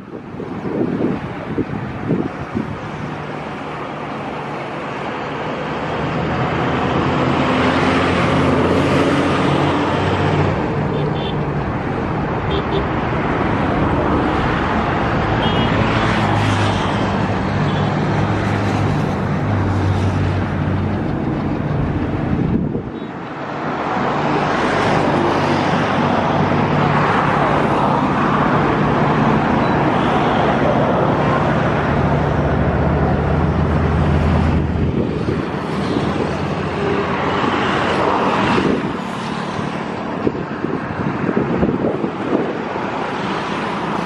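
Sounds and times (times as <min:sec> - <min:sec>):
train wheels rumbling on rail: 0:18.1 - 0:22.8.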